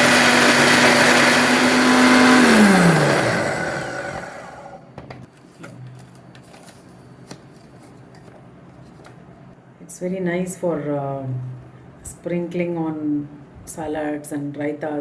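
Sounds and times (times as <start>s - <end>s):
mixer grinder grinding seeds: 0.0s - 4.8s
motor spinning down: 0.0s - 4.8s.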